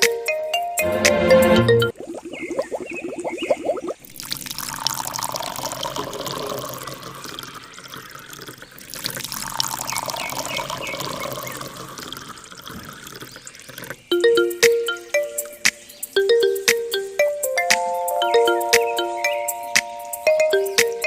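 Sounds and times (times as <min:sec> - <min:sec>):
water pouring and splashing: 0:01.9 - 0:14.1.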